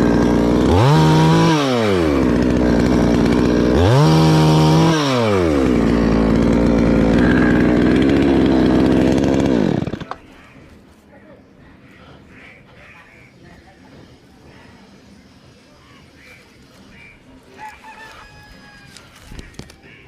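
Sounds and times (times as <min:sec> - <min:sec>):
chainsaw engine revving: 0:00.0 - 0:10.2.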